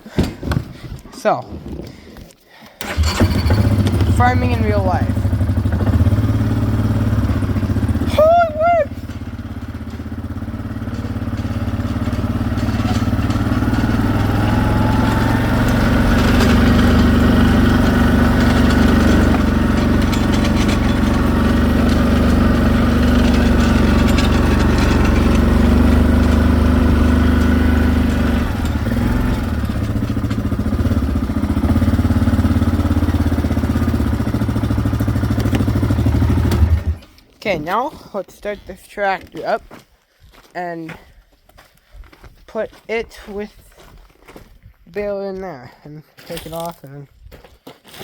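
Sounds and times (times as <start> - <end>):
car engine idling: 2.8 - 37.0.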